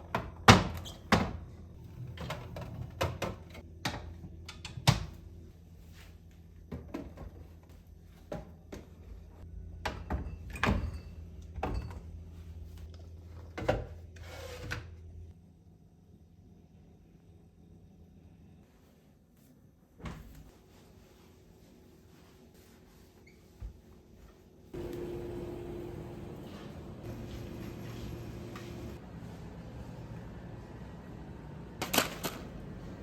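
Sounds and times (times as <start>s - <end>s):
steady low hum: 24.7s - 33.0s.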